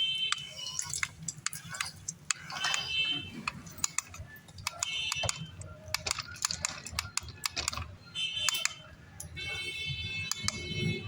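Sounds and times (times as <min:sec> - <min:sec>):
plastic toy car clicks: 0:00.7 - 0:08.8.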